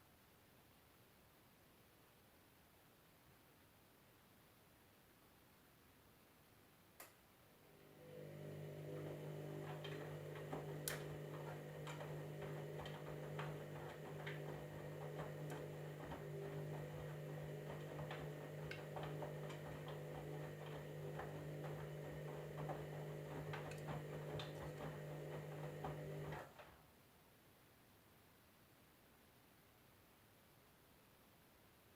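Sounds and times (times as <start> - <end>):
washing machine motor hum: 7.6 - 26.8
washing machine click: 8.2 - 26.5.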